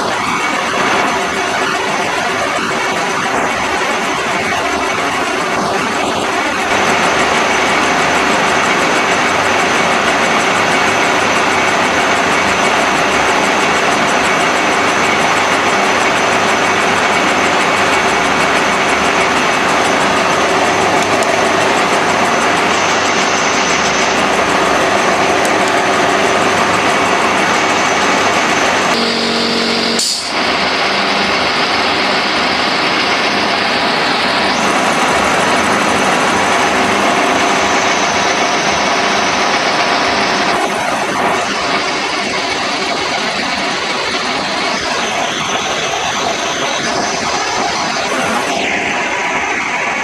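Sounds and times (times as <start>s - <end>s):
shop machinery running: 0.0s - 50.0s
pitched hum: 13.4s - 40.9s.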